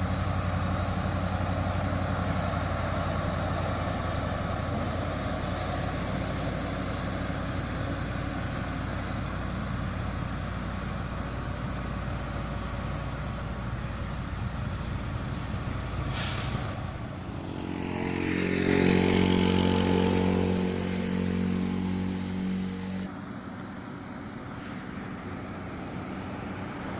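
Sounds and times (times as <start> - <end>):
diesel truck engine rumbling: 0.0 - 26.9
air brake hiss: 16.1 - 17.0.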